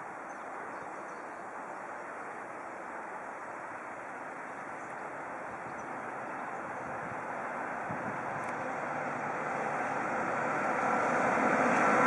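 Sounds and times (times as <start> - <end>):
distant freight train rushing: 2.8 - 12.0.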